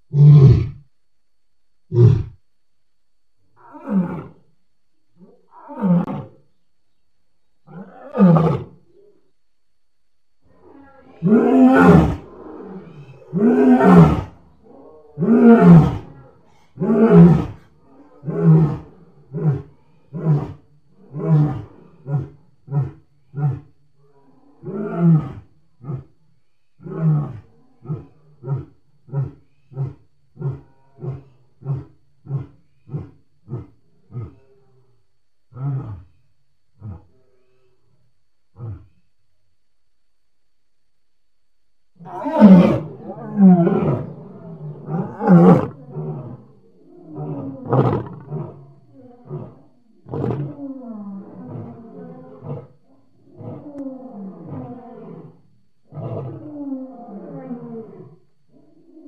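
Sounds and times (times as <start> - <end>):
lion roaring: 10.5 - 26.2, 42.0 - 59.0
lion grunting roars: 42.0 - 59.0.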